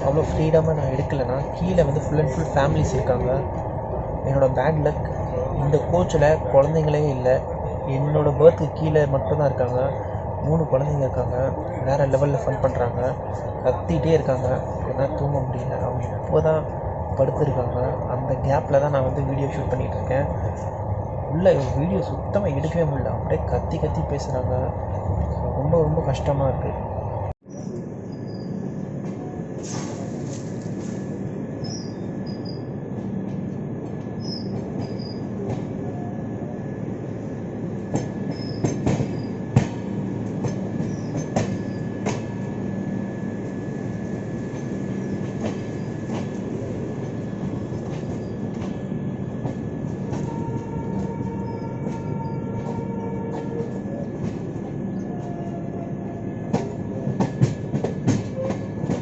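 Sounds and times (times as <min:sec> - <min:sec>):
train rumbling on track: 0:00.0 - 0:59.0
faint high wheel squeal: 0:38.2 - 0:39.4.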